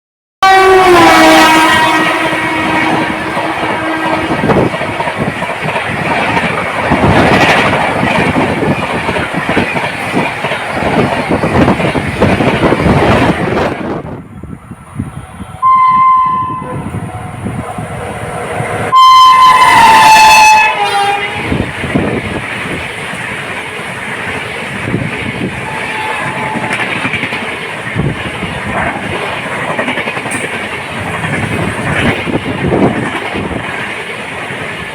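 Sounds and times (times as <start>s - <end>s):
train horn: 0.4s - 5.0s, 15.4s - 17.4s, 18.9s - 21.7s, 25.6s - 26.9s
train coaches rushing past: 0.5s - 34.9s.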